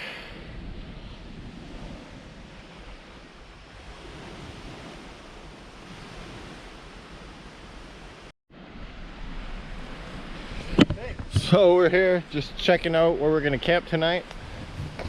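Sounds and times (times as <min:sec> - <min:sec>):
wind on the microphone: 0:00.0 - 0:08.3, 0:09.0 - 0:15.0
lake waves on a beach: 0:00.0 - 0:15.0.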